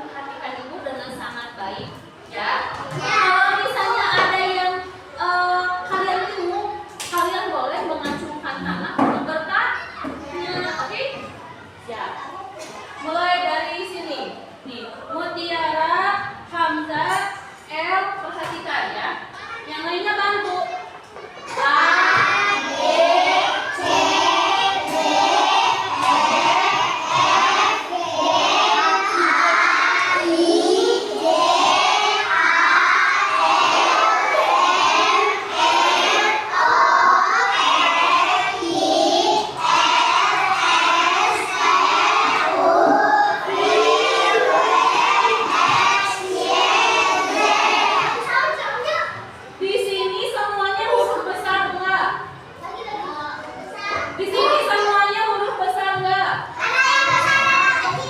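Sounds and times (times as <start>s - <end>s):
children shouting and chanting: 2.8s - 5.2s, 20.5s - 58.0s.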